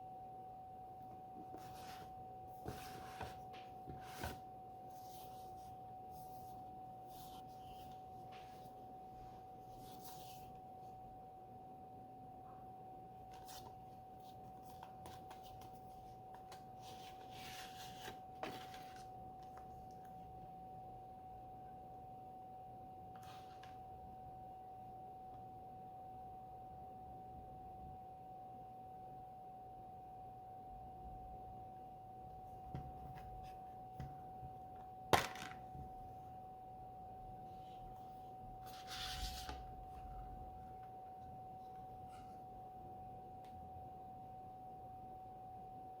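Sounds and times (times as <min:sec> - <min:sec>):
faint high whine: 0:00.0 - 0:35.1
faint high hum: 0:00.0 - 0:46.0.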